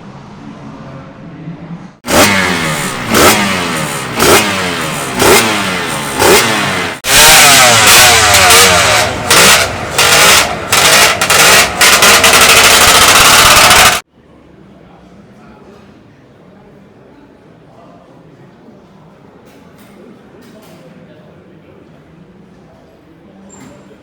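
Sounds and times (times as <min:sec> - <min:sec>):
motorcycle engine revving: 0:02.0 - 0:14.0.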